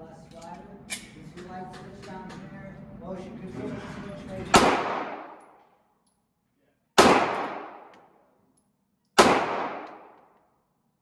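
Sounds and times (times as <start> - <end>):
gunshots echoing indoors: 4.5 - 5.6, 7.0 - 8.2, 9.2 - 10.4.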